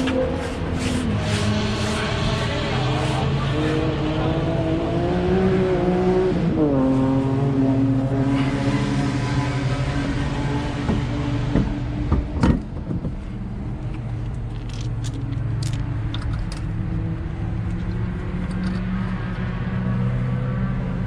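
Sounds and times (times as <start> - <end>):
car engine running: 0.0 - 4.9.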